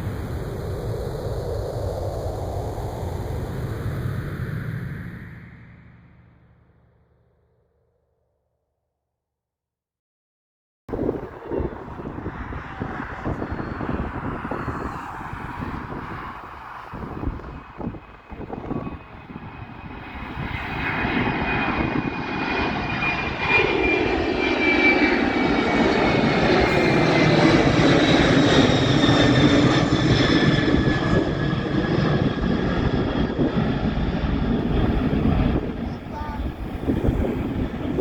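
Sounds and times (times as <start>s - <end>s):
jet engines at high thrust: 0.0s - 7.0s, 10.9s - 38.0s
high whining engine tones: 10.9s - 38.0s.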